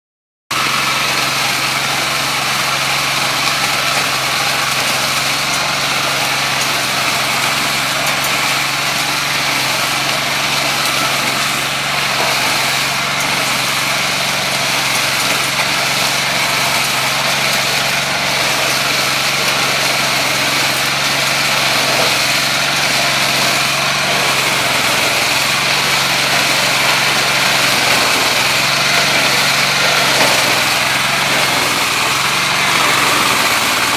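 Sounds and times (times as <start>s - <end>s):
small engine running: 0.5s - 33.9s.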